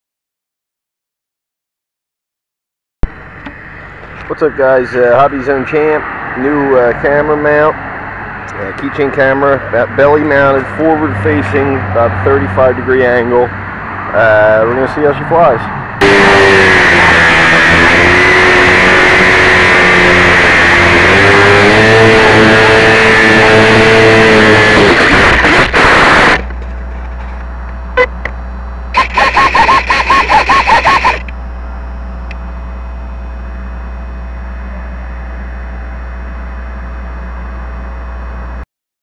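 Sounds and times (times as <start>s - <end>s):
steady low hum: 3.0s - 38.6s
rc plane motor and propeller: 16.0s - 26.4s, 29.0s - 31.3s
rapid pulsing warbling tone: 29.0s - 31.3s.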